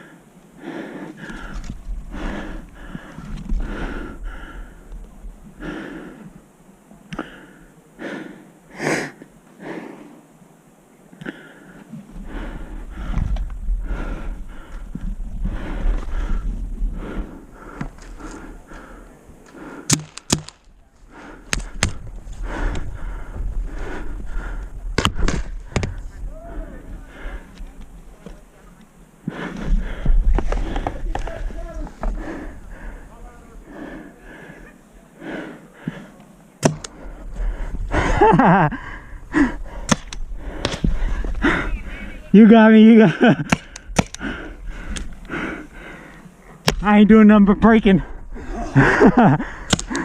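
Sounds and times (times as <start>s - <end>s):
heavy rapid breathing: 0.0s - 6.4s, 7.1s - 10.3s, 11.2s - 28.5s, 29.1s - 50.0s
person crying out: 26.3s - 26.8s.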